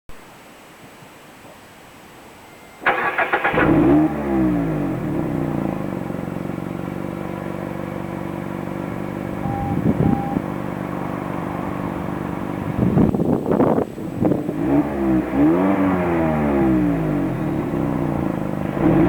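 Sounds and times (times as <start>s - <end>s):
car engine revving and idling: 3.1s - 13.0s, 14.1s - 19.0s.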